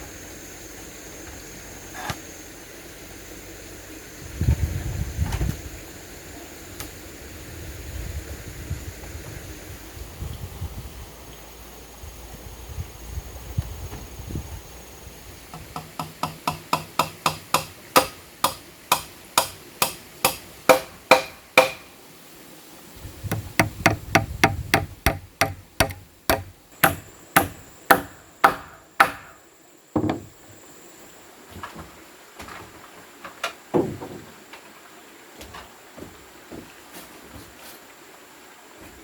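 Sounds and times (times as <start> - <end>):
hammer striking wood: 15.6 - 21.9, 23.3 - 29.4, 30.0 - 30.3
dull knock: 23.3 - 29.3, 30.0 - 30.3, 33.7 - 34.3.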